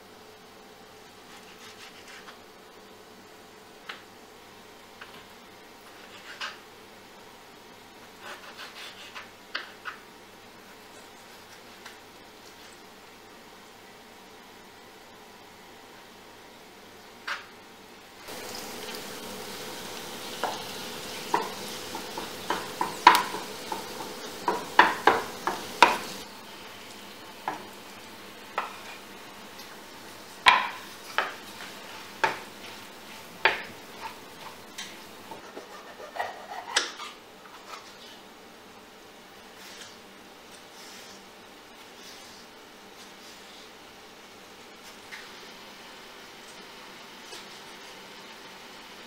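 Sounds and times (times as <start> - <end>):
steady hiss: 10.4 - 35.4
utensil scraping a pan: 20.4 - 38.2.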